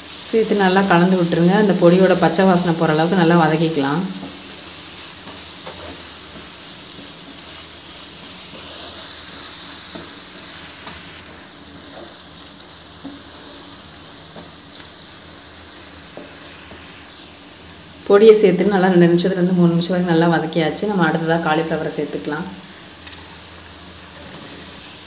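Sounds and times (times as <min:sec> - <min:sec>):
food sizzling in hot oil: 0:00.0 - 0:25.0
wooden spatula scraping: 0:05.2 - 0:07.6, 0:08.2 - 0:12.2, 0:24.0 - 0:25.0.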